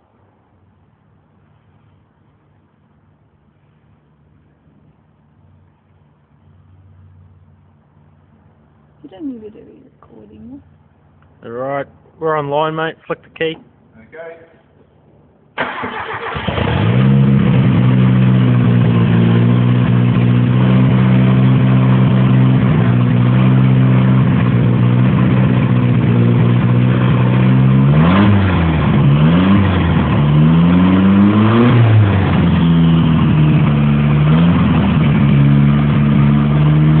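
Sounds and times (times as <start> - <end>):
car engine idling and revving: 15.6 - 37.0.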